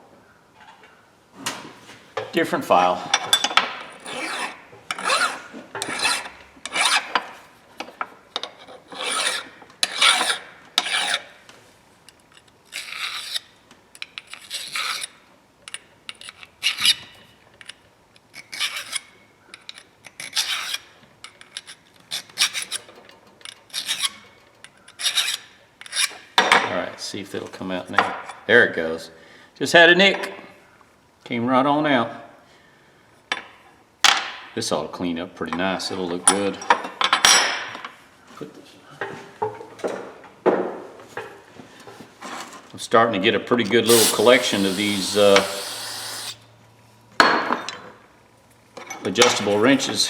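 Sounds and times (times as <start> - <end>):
hand file scraping steel: 4.0 - 7.1, 8.8 - 11.3, 12.7 - 13.5, 14.3 - 15.2, 18.4 - 19.1, 19.7 - 20.9, 22.1 - 22.9, 23.7 - 26.2, 43.7 - 46.4.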